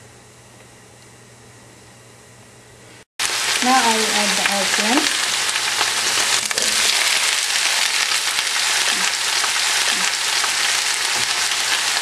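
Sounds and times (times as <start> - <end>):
vegetables sizzling in hot oil: 3.2 - 12.0.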